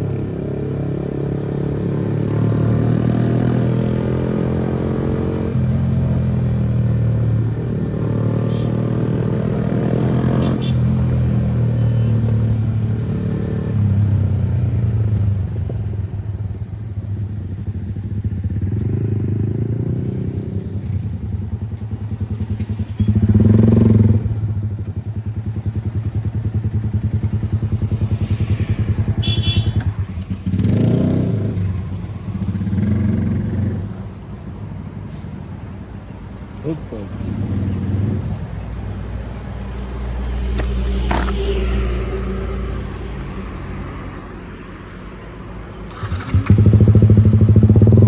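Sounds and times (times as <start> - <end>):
motorcycle engine revving: 0.0 - 34.0, 36.6 - 44.3, 45.8 - 48.0
motorcycle engine running: 0.0 - 34.0, 45.9 - 48.0.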